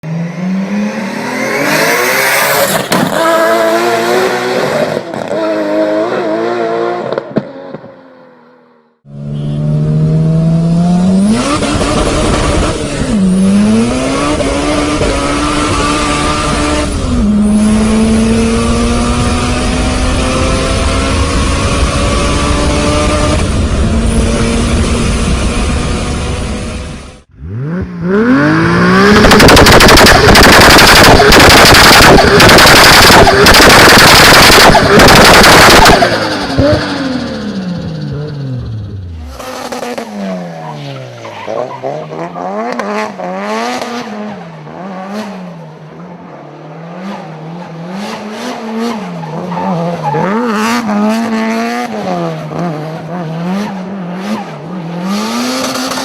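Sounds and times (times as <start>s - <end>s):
car engines revving: 0.0s - 56.0s
exhaust bangs: 22.6s - 41.2s
exhaust pops and crackles: 29.1s - 37.0s.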